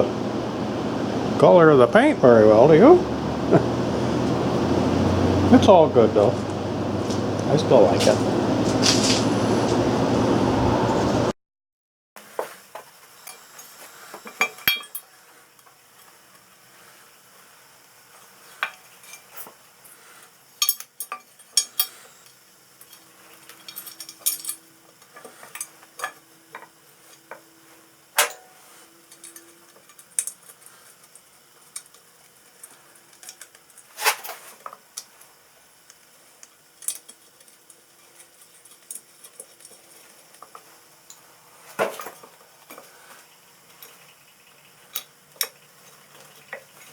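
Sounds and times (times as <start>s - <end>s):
metal tools clinking: 13.2s - 15.2s, 20.6s - 27.5s, 28.2s - 34.4s.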